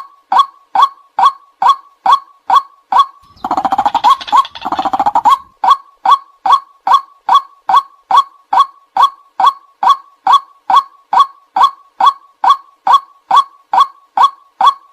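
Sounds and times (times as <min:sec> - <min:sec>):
waterhen calling: 0:03.2 - 0:05.5.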